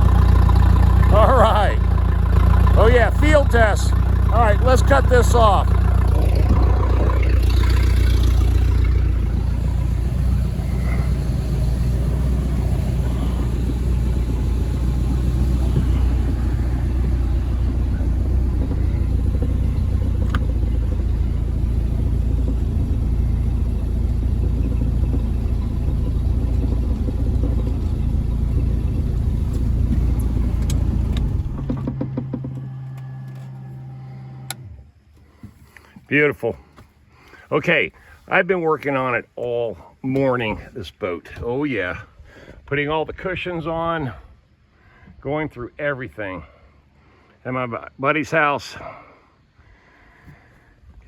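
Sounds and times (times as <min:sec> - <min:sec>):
low steady hum: 0:00.0 - 0:35.9
boat engine idling: 0:00.0 - 0:40.7.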